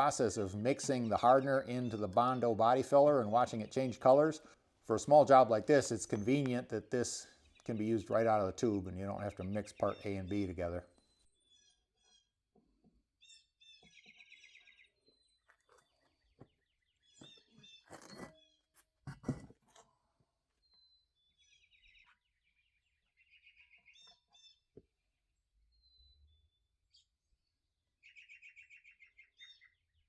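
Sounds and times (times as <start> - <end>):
brief scraping from handling: 17.9 - 18.4, 19.1 - 19.7
soft handling knocks: 19.1 - 19.8
bird chirps and calls: 28.0 - 29.8.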